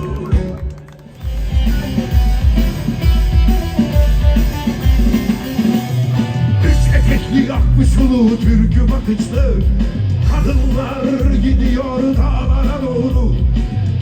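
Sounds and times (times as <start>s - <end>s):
guitar and plucked strings: 0.0s - 10.8s
drum beat: 0.0s - 14.0s.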